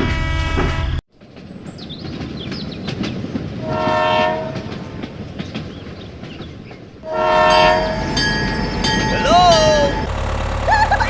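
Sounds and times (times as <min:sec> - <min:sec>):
horn sounding: 0:00.0 - 0:01.0, 0:03.6 - 0:04.7, 0:07.0 - 0:08.3
rumbling clattering running noise: 0:08.1 - 0:11.0.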